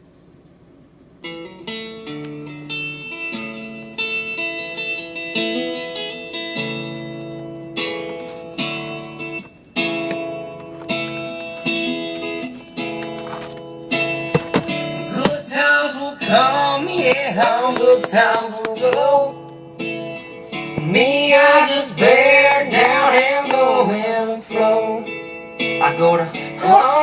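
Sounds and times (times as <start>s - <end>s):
acoustic guitar chords: 1.0s - 27.0s.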